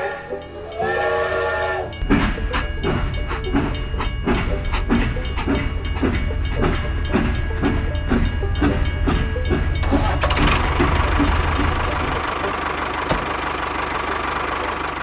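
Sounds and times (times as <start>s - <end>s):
toy train whistle: 0.0s - 2.0s
toy train chugging: 0.0s - 15.0s
low hum: 1.7s - 14.9s.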